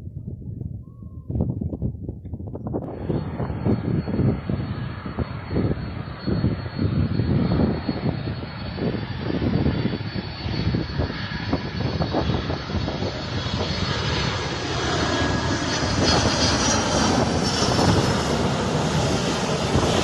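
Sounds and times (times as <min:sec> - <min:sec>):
wind buffeting microphone: 0:00.0 - 0:20.0
jet engines whining: 0:02.8 - 0:20.0.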